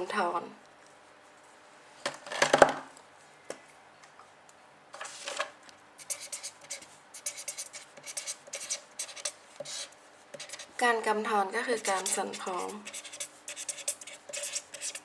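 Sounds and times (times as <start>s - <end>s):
pen scratching on paper: 6.0s - 10.8s, 11.6s - 15.0s.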